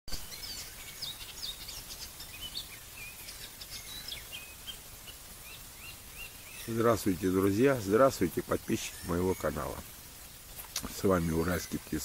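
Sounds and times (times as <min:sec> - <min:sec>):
faint low background noise: 0:00.1 - 0:12.0
songbirds singing: 0:00.1 - 0:12.0.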